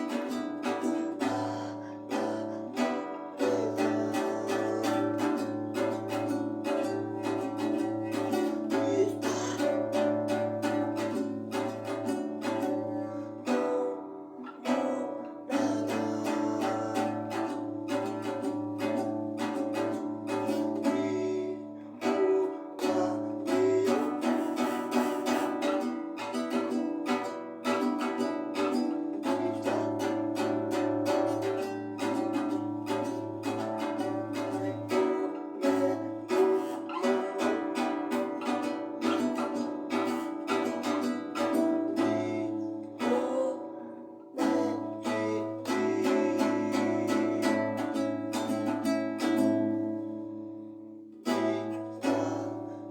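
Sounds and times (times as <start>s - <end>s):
strummed acoustic guitar: 0.0s - 52.9s.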